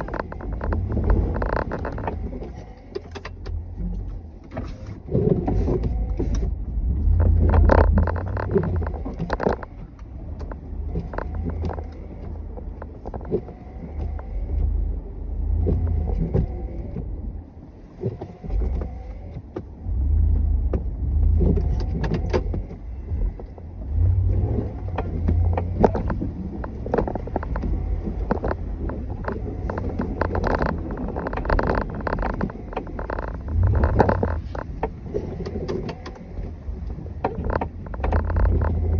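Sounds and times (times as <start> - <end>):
knocks and rattles: 0.0 - 2.4, 7.0 - 14.7, 24.1 - 36.3
snow plow engine rumbling: 0.0 - 38.9.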